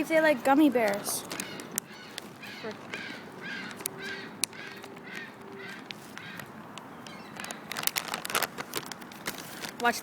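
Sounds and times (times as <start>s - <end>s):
seagulls calling: 0.8s - 7.9s.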